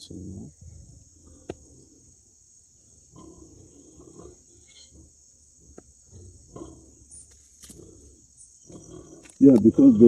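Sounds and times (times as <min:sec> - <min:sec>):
insects chirring: 0:00.0 - 0:10.0
pig grunts: 0:03.1 - 0:07.1, 0:07.7 - 0:10.0.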